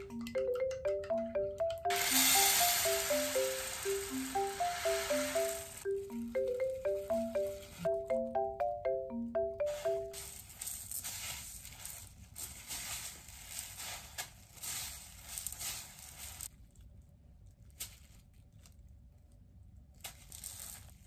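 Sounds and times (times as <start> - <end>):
beads rustling in a plastic bowl: 10.1 - 16.5, 20.0 - 21.0
plastic glove crinkling: 10.1 - 16.9, 17.5 - 18.9, 19.9 - 21.0.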